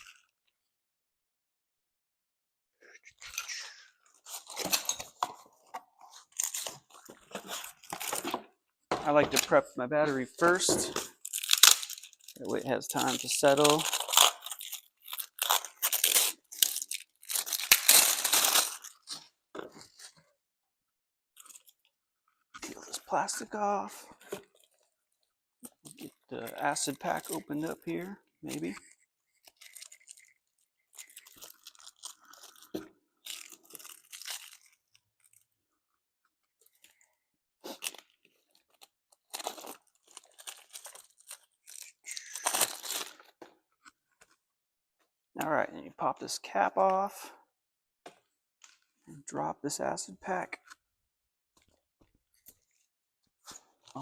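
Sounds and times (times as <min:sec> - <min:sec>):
plastic packaging crinkling and tearing: 0:03.0 - 0:08.5, 0:10.3 - 0:20.2, 0:25.6 - 0:35.6, 0:36.6 - 0:44.4.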